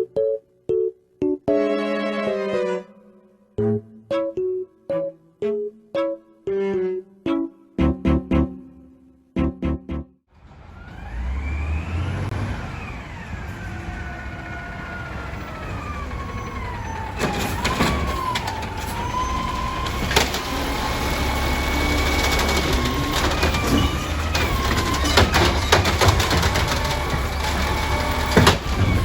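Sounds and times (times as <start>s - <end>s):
diesel engine rumbling: 10.4s - 29.0s.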